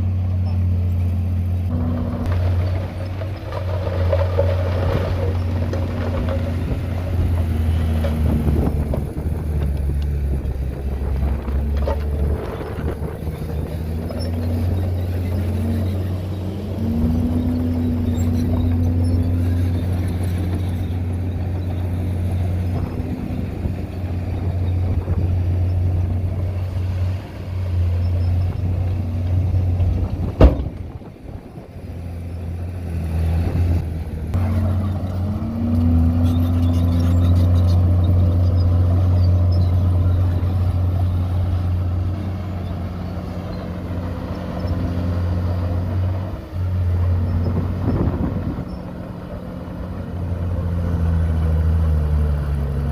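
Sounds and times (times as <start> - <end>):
heavy diesel engine humming: 0.0 - 52.9.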